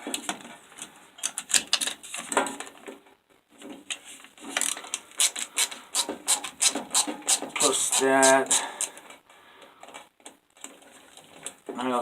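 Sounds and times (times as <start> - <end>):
clicks and knocks of handling parts: 0.0 - 3.0.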